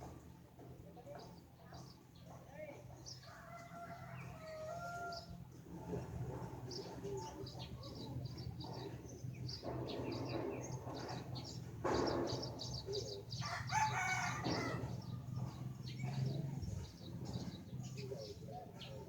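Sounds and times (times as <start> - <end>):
birds chirping: 6.7 - 19.0.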